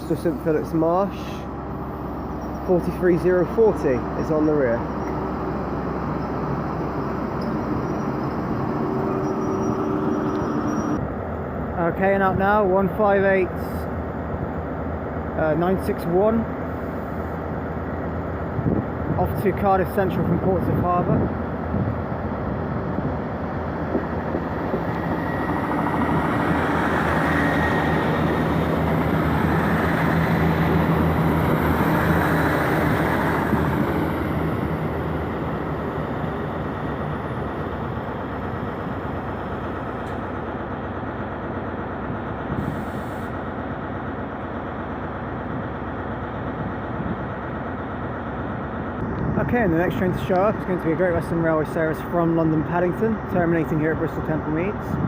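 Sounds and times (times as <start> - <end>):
diesel train engines: 0.0 - 55.0
train wheels on rails: 21.1 - 54.9.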